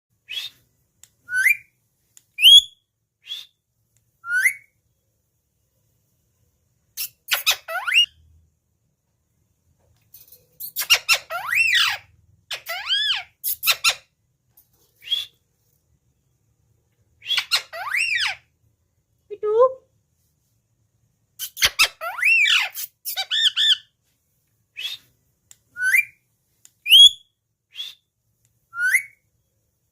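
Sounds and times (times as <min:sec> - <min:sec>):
parrot whistled chirps: 0:00.2 - 0:00.6, 0:01.2 - 0:01.8, 0:02.4 - 0:03.6, 0:04.2 - 0:04.8, 0:07.0 - 0:08.2, 0:10.6 - 0:14.1, 0:15.0 - 0:15.4, 0:17.2 - 0:18.5, 0:21.4 - 0:23.9, 0:24.7 - 0:25.1, 0:25.7 - 0:26.2, 0:26.8 - 0:28.1, 0:28.7 - 0:29.2
parrot squawks: 0:10.7 - 0:14.1, 0:17.2 - 0:18.5, 0:21.4 - 0:23.9.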